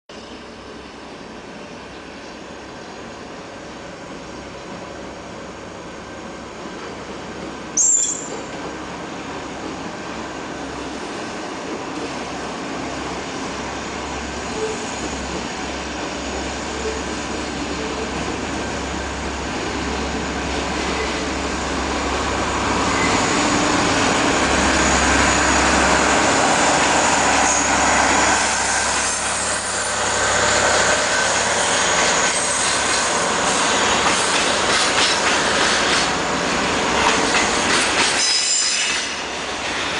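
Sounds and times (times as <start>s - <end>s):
freight train passing: 0.1s - 39.9s.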